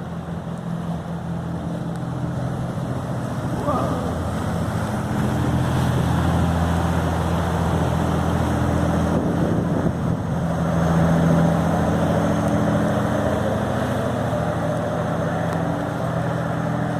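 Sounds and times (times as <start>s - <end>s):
boat engine running: 0.0s - 16.9s
water wash: 0.0s - 16.9s
wind noise: 6.9s - 11.4s.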